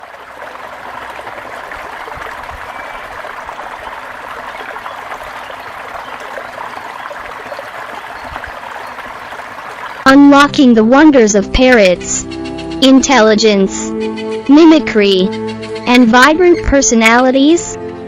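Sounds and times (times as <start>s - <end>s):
running water babbling: 0.0s - 10.4s.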